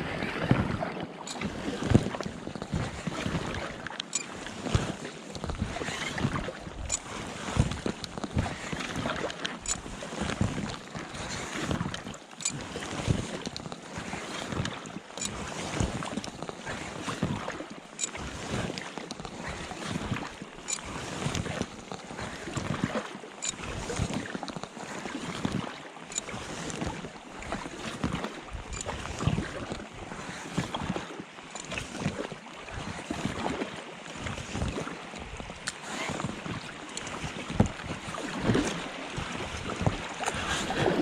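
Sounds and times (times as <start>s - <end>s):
paddle strokes splashing water: 0.0s - 41.0s
wind buffeting microphone: 37.1s - 41.0s.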